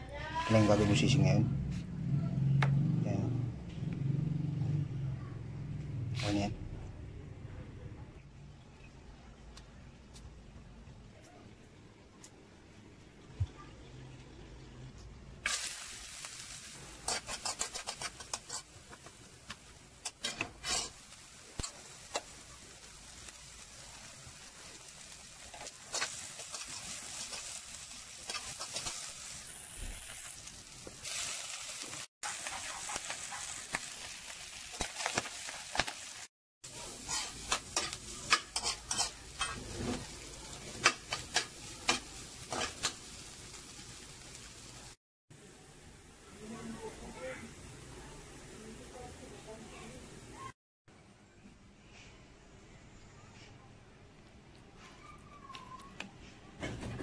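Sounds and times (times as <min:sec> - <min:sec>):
food sizzling in a wok: 0:15.4 - 0:50.6
metal utensil scraping a pan: 0:17.0 - 0:19.1, 0:20.0 - 0:21.0, 0:25.5 - 0:29.1, 0:36.7 - 0:43.0.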